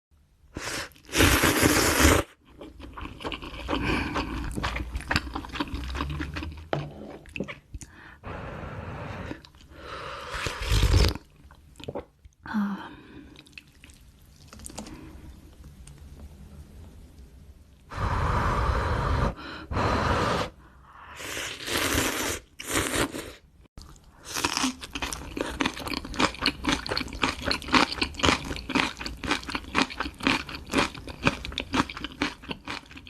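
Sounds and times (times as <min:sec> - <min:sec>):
crunchy chewing and biting: 0:23.8 - 0:33.0.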